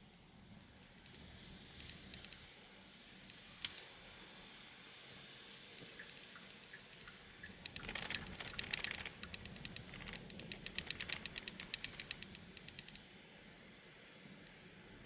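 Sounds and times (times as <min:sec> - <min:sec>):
faint road noise: 0:05.7 - 0:13.0
raindrops tapping on car body: 0:07.4 - 0:12.9.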